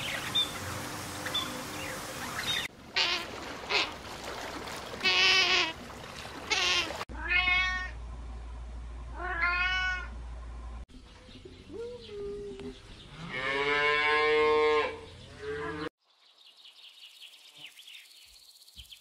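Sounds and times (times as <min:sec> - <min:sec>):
cat meowing: 0:06.5 - 0:08.0, 0:09.2 - 0:10.1.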